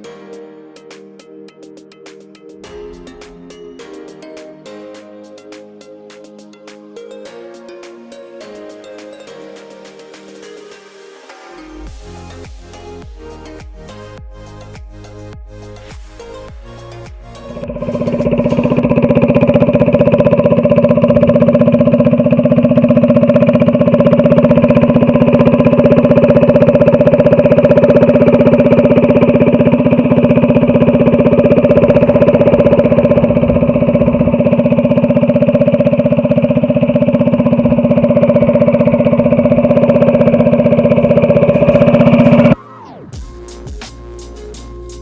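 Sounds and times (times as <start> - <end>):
small engine running steadily: 2.6 - 4.0, 11.6 - 45.0.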